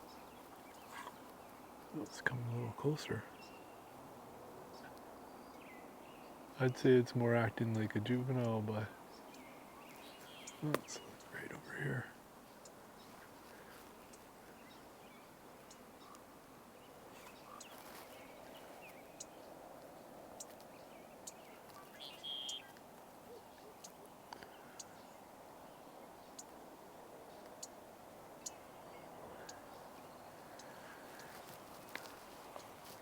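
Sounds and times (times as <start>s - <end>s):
low outdoor hush: 0.0s - 33.0s
faint ticks: 15.6s - 16.3s, 19.2s - 25.1s, 29.4s - 33.0s
high bird call: 21.7s - 23.8s.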